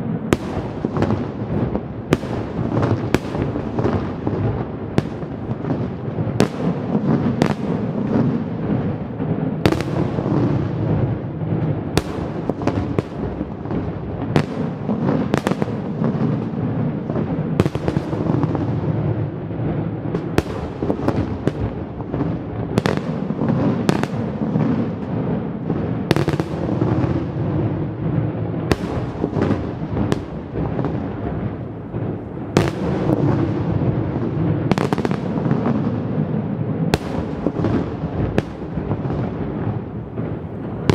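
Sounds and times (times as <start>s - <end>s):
fireworks bangs: 0.0s - 40.9s
fireworks crackle and rumble: 0.0s - 40.9s.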